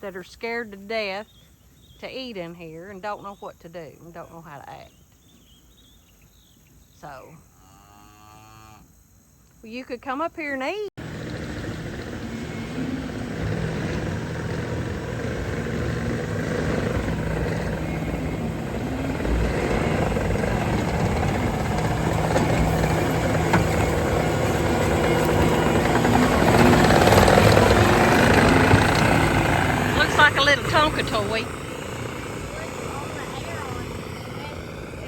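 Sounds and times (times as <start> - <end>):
tractor engine running: 11.0 - 35.0.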